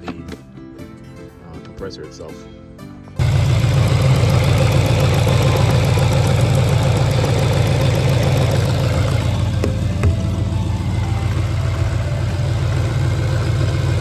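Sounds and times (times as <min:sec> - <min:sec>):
car engine idling: 0:03.2 - 0:14.0.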